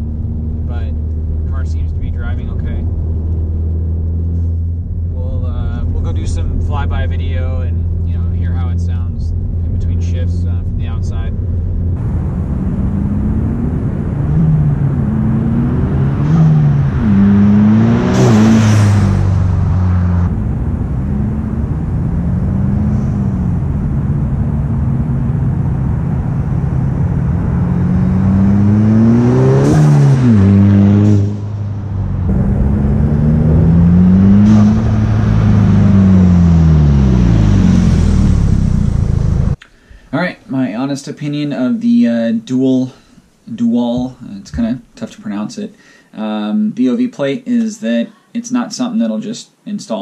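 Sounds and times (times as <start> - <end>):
car engine accelerating through gears: 0.0 - 39.6.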